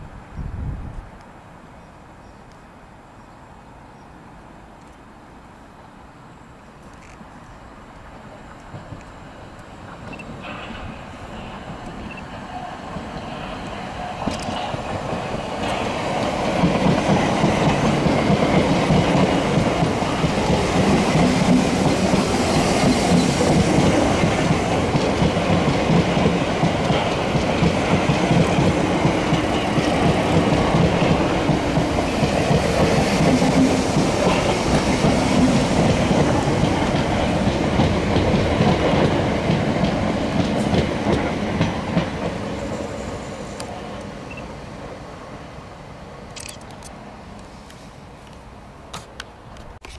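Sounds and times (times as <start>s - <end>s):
train wheels on rails: 6.8s - 49.9s.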